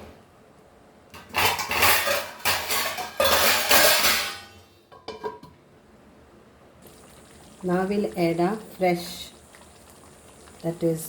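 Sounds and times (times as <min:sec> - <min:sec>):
metal utensil scraping a pot: 0:01.2 - 0:04.5.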